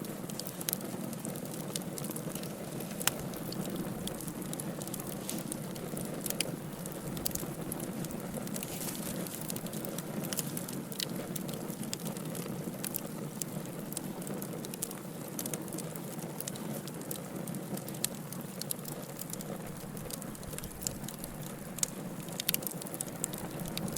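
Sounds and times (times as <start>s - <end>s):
fire pops and snaps: 0.0s - 23.9s
wood fire burning: 0.0s - 23.9s.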